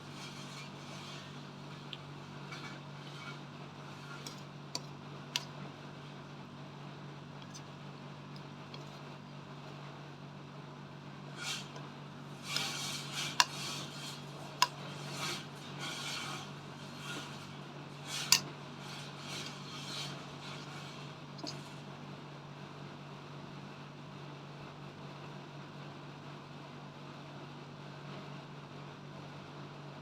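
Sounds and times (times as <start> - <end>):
utensils scraping on dishes: 0.1 - 5.5, 11.4 - 21.8.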